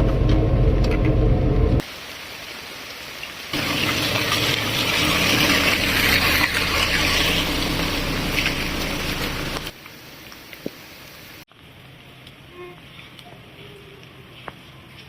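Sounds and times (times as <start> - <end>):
water gushing: 1.8 - 11.4.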